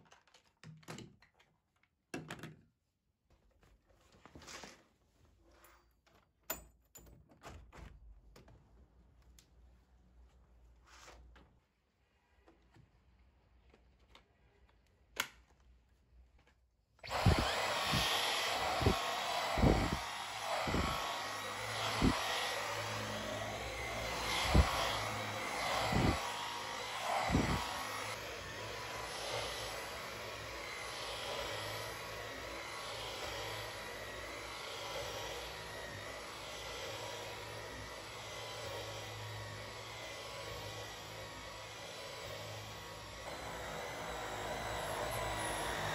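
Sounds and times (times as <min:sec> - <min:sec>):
vacuum nozzle knocking: 0:17.0 - 0:37.6
vacuum cleaner running: 0:17.0 - 0:45.9.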